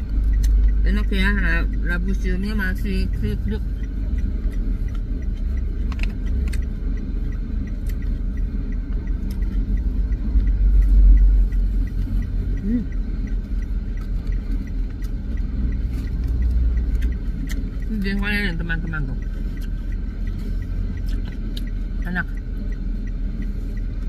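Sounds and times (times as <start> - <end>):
eating clicks and ticks: 0.0 - 24.0
low outdoor rumble: 0.0 - 24.0.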